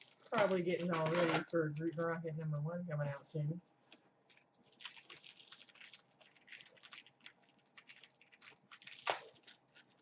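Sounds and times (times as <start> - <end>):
plastic packaging crinkling: 0.0 - 2.2, 4.2 - 10.0.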